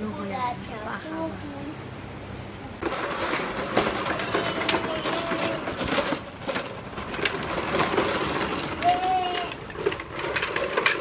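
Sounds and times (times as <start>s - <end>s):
toy motorcycle rolling and rattling: 2.8s - 11.0s.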